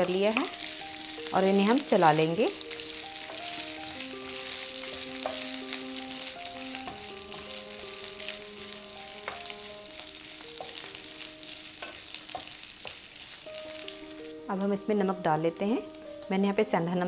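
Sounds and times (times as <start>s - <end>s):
potatoes sizzling in hot oil: 0.0s - 17.0s
soft background music: 0.0s - 17.0s
wooden spatula scraping a pan: 2.8s - 14.3s.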